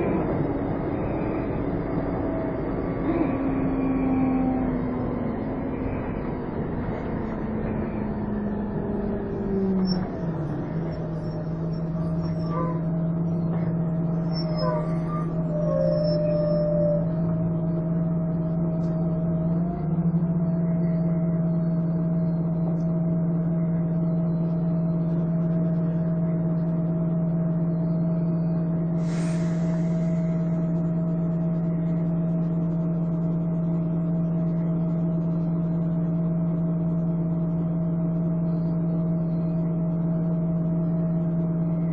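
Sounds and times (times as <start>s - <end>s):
bus engine whining drone: 0.0s - 41.9s
air hiss: 29.0s - 30.4s.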